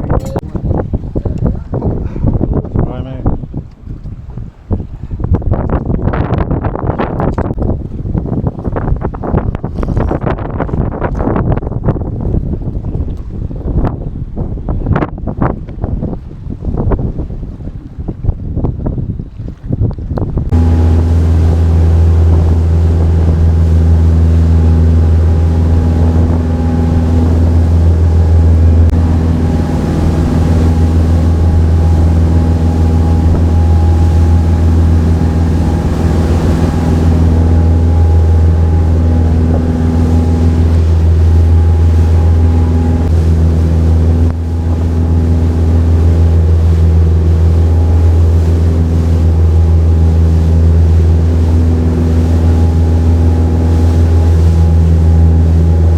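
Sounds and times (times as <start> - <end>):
boat engine droning: 20.4 - 55.9.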